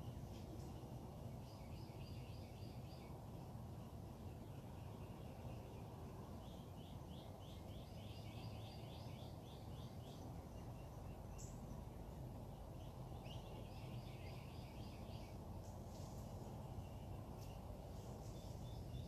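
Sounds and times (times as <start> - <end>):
low background rumble: 0.0 - 19.0
songbird singing repeated notes: 0.0 - 19.0.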